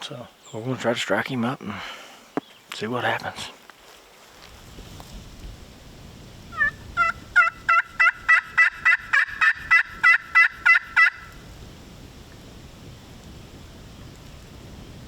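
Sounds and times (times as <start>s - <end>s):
turkey call yelps: 6.5s - 11.3s.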